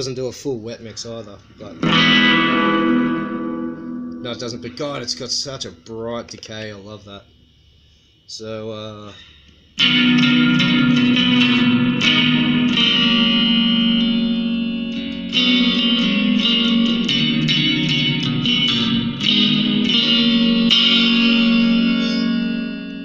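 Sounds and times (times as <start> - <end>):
electric guitar with reverb: 1.6 - 6.4, 9.8 - 23.0.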